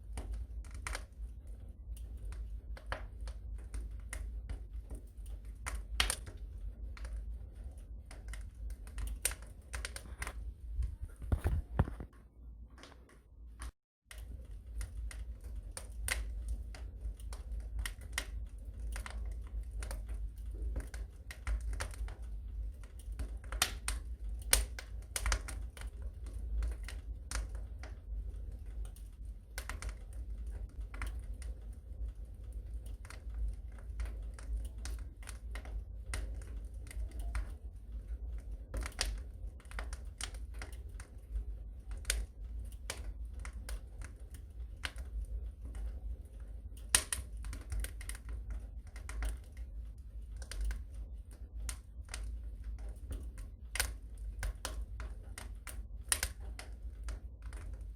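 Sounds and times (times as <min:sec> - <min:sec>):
low steady rumble: 0:00.0 - 0:57.9
wood fire crackling and popping: 0:00.0 - 0:57.9.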